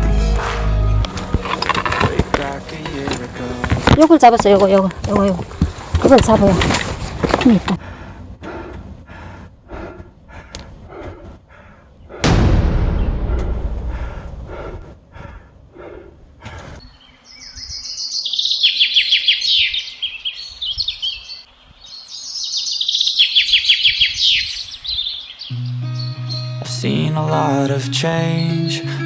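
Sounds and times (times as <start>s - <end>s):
loud rushing burst: 12.2s - 15.1s
birds chirping and trilling: 16.7s - 26.8s.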